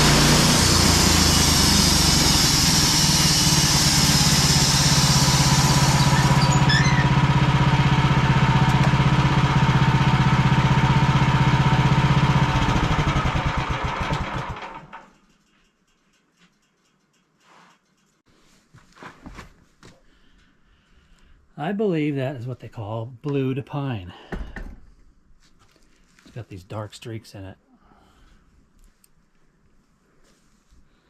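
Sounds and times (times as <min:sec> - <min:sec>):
saw blade hissing through log: 0:00.0 - 0:07.0
sawmill engine running: 0:00.0 - 0:15.1.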